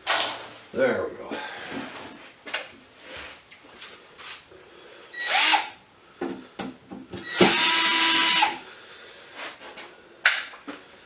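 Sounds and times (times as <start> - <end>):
electric drill running: 5.2 - 5.8, 7.3 - 8.6.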